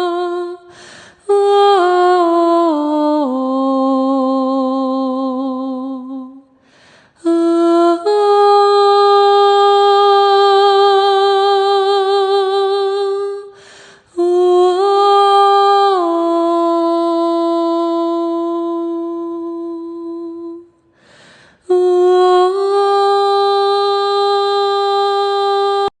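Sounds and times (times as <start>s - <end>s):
person breathing: 0.6s - 1.2s, 6.6s - 7.2s, 13.5s - 14.1s, 20.8s - 21.7s.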